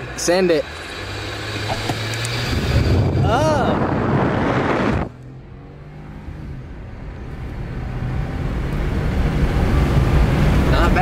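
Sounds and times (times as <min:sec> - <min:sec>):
car engine at high revs: 0:00.0 - 0:11.0
road noise: 0:00.0 - 0:11.0
wind noise: 0:01.7 - 0:05.2.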